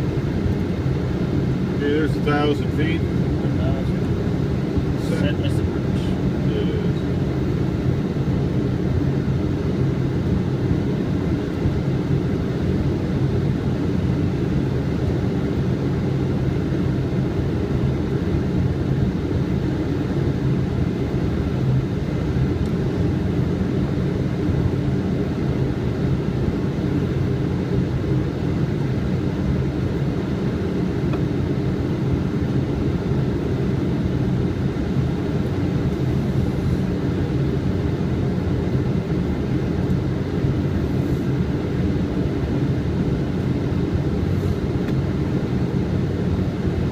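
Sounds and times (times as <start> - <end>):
low rumble of airflow and engines: 0.0 - 46.9.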